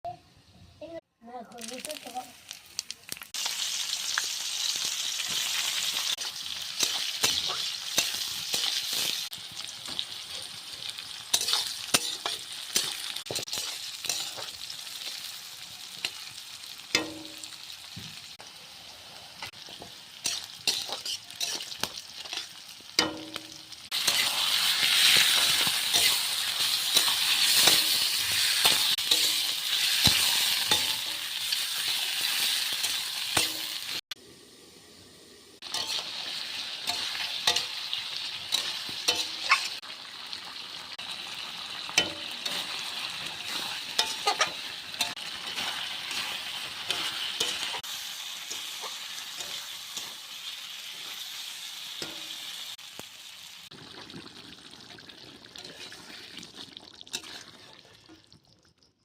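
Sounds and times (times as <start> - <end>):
chicken sizzling in hot oil: 1.5 - 59.0
metal utensil scraping a pan: 5.2 - 15.2, 19.4 - 34.0, 35.6 - 39.8, 41.8 - 51.3, 55.6 - 56.2, 57.1 - 57.9.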